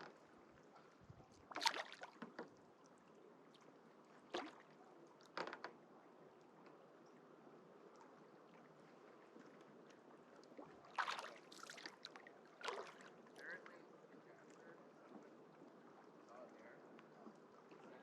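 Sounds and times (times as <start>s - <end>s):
paddle splashing in water: 0.0s - 2.8s, 4.2s - 5.9s, 10.2s - 13.4s.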